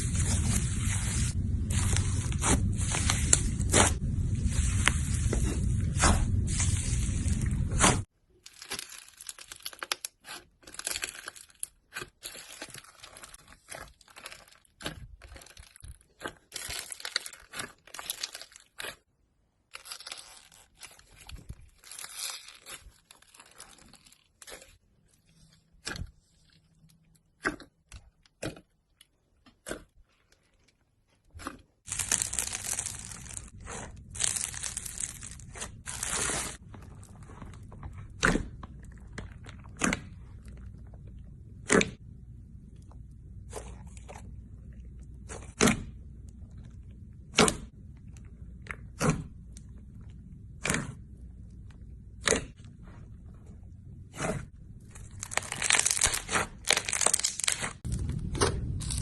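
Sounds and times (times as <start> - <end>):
slime crackling and popping: 31.9 - 41.0, 54.9 - 59.0.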